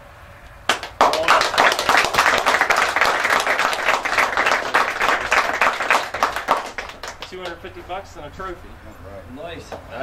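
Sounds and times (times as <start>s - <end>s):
crowd applauding: 0.7s - 7.8s.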